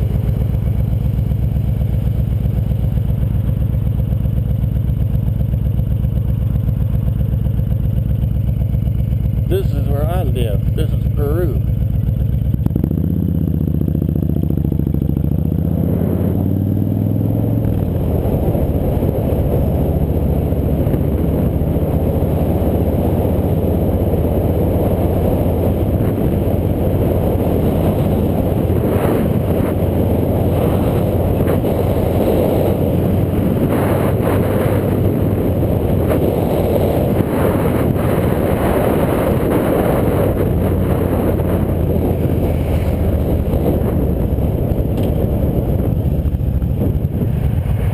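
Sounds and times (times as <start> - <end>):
motorcycle engine accelerating: 0.0 - 47.9
dense rush of noise: 15.3 - 47.9.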